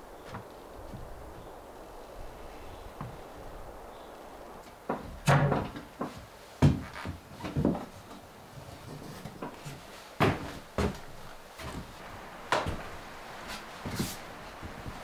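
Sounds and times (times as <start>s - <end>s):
knocks and clunks: 4.8s - 7.9s.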